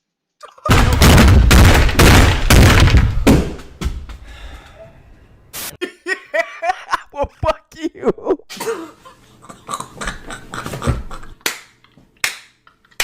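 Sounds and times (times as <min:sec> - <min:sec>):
heavy thumps and crashing: 0:00.7 - 0:04.3.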